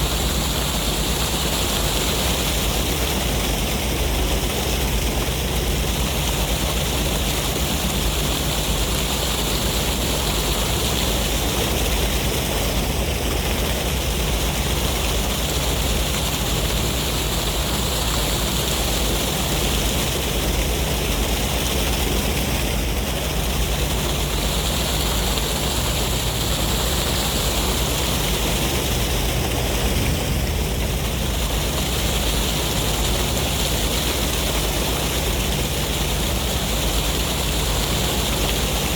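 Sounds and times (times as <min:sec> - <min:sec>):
surf waves washing: 0:00.0 - 0:38.9
deep rumble: 0:28.2 - 0:32.6.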